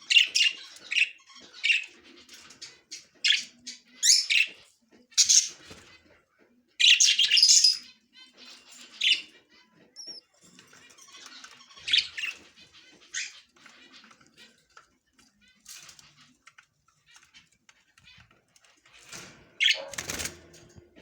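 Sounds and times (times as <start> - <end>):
budgerigars chirping: 0.0 - 5.8, 6.8 - 14.6, 19.6 - 20.2.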